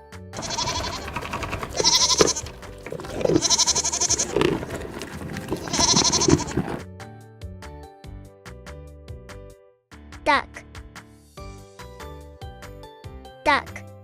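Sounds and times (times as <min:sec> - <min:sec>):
goat bleating: 0:00.4 - 0:06.8.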